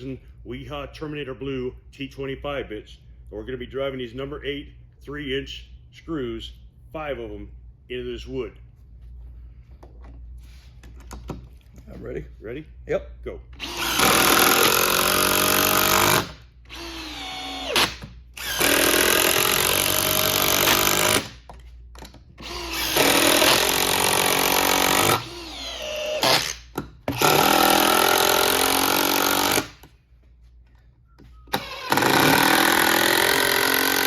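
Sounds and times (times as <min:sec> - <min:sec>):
cordless drill running: 0:13.6 - 0:21.3, 0:22.4 - 0:29.9, 0:31.5 - 0:34.0
impact driver hammering: 0:13.6 - 0:21.5, 0:22.4 - 0:29.9, 0:31.5 - 0:34.0.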